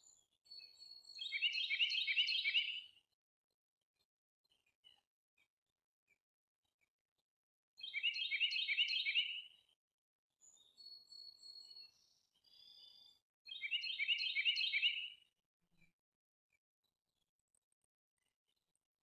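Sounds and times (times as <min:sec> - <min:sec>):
songbird chattering song: 0:00.5 - 0:02.9, 0:07.8 - 0:09.5, 0:10.5 - 0:15.2.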